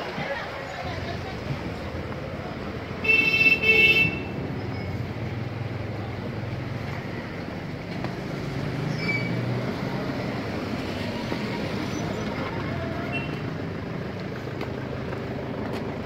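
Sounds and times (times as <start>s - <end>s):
traffic noise: 0.0s - 16.0s
car engines running: 4.2s - 16.0s.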